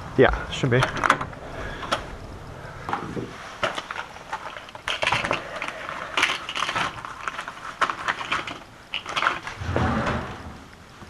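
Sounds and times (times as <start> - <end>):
hard objects clicking and knocking: 2.9 - 10.4.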